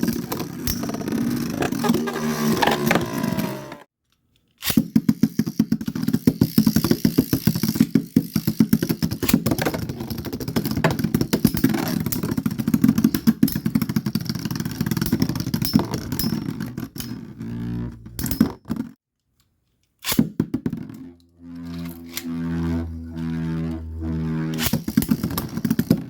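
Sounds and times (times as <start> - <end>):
spinning tops whirring: 0.1 - 3.9, 20.9 - 26.0.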